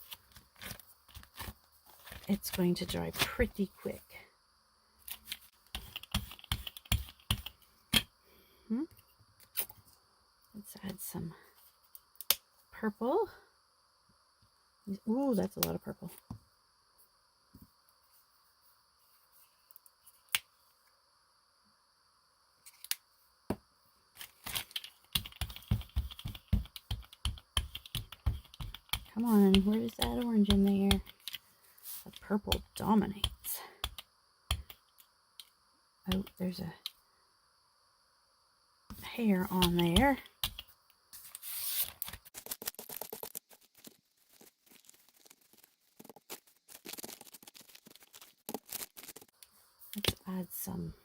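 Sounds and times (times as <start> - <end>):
paper rustling: 0.0 - 2.6, 41.2 - 49.4
rapid irregular tapping: 25.1 - 31.3.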